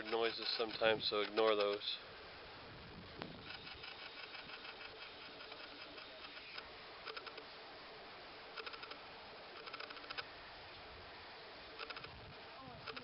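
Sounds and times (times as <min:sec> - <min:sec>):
camera mechanism ticking: 0:00.0 - 0:01.9, 0:03.4 - 0:07.4, 0:08.6 - 0:10.3, 0:11.8 - 0:12.2.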